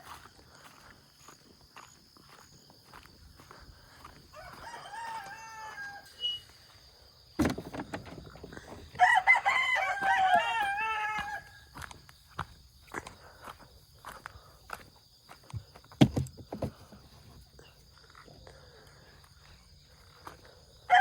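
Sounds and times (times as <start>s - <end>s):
rooster crowing: 4.3s - 6.2s, 8.9s - 11.8s.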